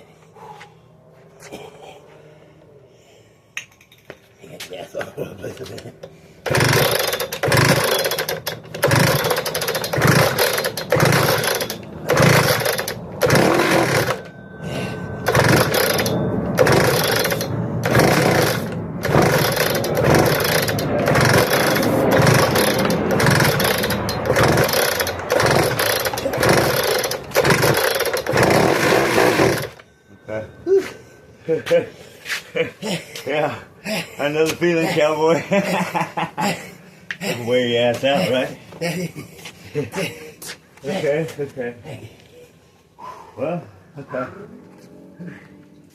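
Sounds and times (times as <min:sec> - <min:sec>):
cut-off saw starting: 0:06.4 - 0:14.3, 0:15.2 - 0:29.8.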